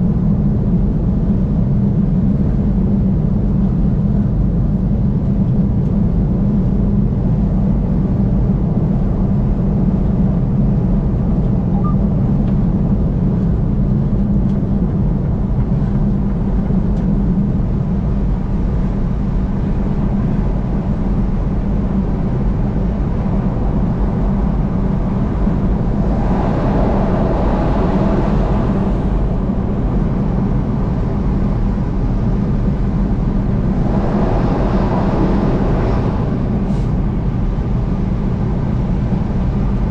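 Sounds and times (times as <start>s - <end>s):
car road noise rumble: 0.0s - 39.9s
rushing swell of passing traffic: 20.6s - 39.9s.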